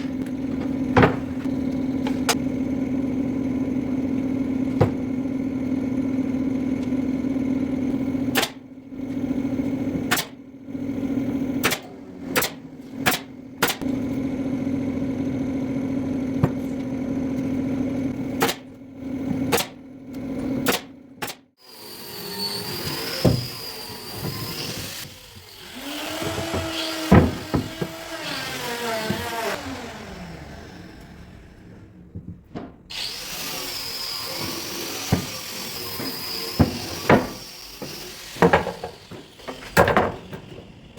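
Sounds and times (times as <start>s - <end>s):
workshop sounds: 0.0s - 40.9s
power tool motor humming: 21.6s - 31.8s, 32.9s - 40.9s.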